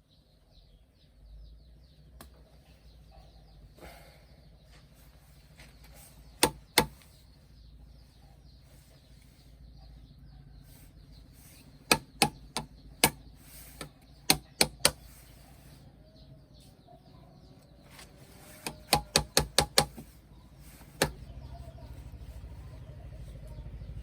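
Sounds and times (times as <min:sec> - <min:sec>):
sharp knocks: 0:06.4 - 0:07.0, 0:11.9 - 0:13.2, 0:14.3 - 0:15.0, 0:18.6 - 0:20.1.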